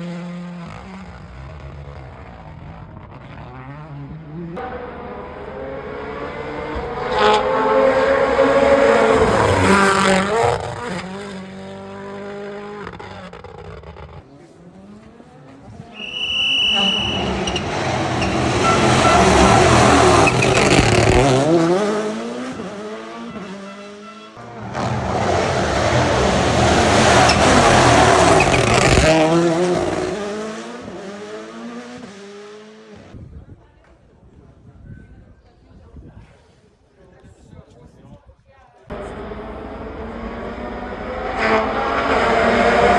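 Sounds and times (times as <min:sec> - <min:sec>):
rally cars racing past: 0:00.0 - 0:33.2, 0:38.9 - 0:42.9
high squeal: 0:16.0 - 0:21.5, 0:25.4 - 0:29.2.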